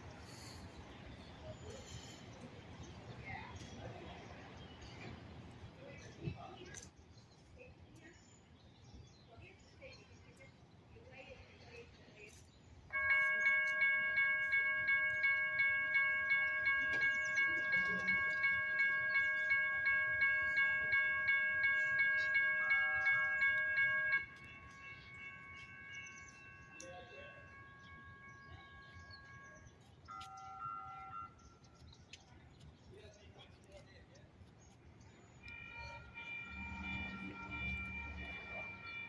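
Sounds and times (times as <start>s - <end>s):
fainter bell ringing: 12.9s - 29.6s, 35.4s - 39.0s
railroad crossing bell ringing: 12.9s - 31.4s, 35.4s - 39.0s.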